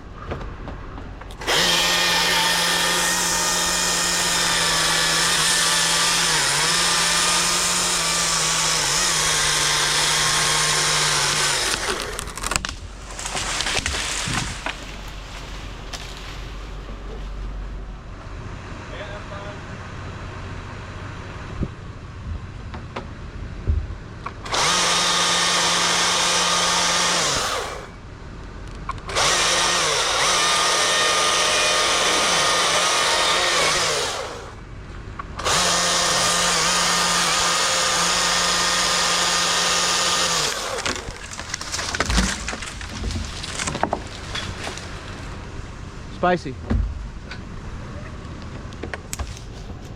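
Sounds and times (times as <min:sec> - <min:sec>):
chainsaw idling: 0:01.3 - 0:12.5, 0:24.4 - 0:28.0, 0:29.1 - 0:34.6, 0:35.4 - 0:45.4
chainsaw cutting wood: 0:01.3 - 0:16.3, 0:24.4 - 0:28.0, 0:29.0 - 0:34.6, 0:35.4 - 0:45.4.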